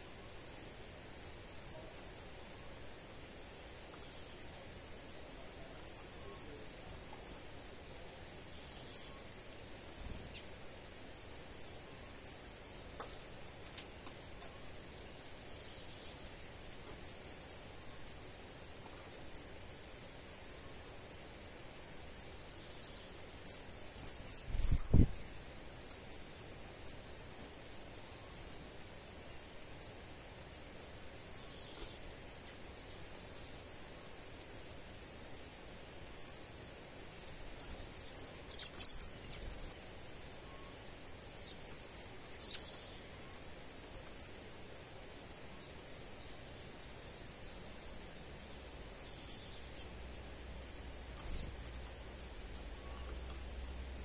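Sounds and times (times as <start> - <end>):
faint background hiss: 0.0 - 54.0
bird high-pitched chirps: 37.5 - 39.5, 40.1 - 44.4, 50.8 - 52.0.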